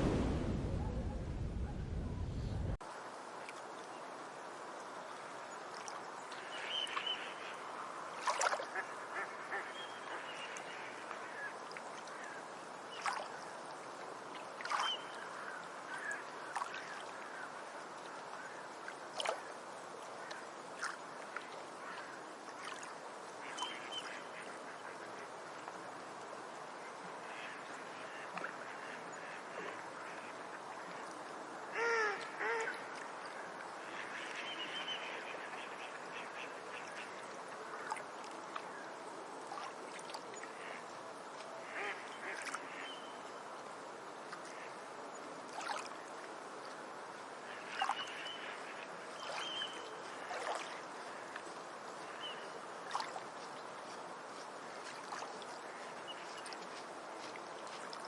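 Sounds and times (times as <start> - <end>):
steady background hiss: 0.0 - 58.0.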